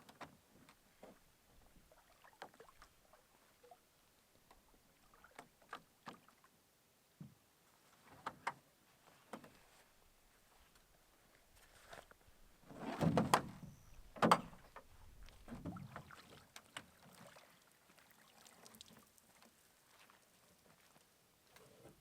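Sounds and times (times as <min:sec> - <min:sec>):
soft water noise: 0:00.0 - 0:22.0
paddle knocking against hull: 0:12.8 - 0:13.6, 0:14.2 - 0:14.8.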